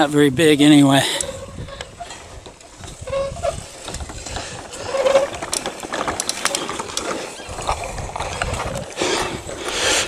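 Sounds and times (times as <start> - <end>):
bicycle rolling on dirt trail: 0.0 - 10.0
clicks and rattles: 1.2 - 8.9.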